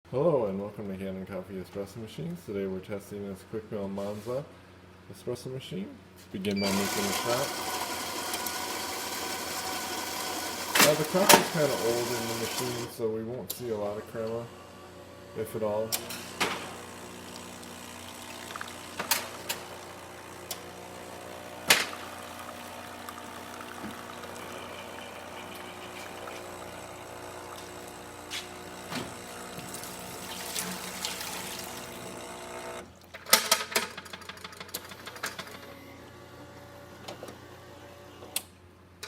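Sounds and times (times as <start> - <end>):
espresso machine pump humming: 6.6 - 12.9, 16.0 - 32.9.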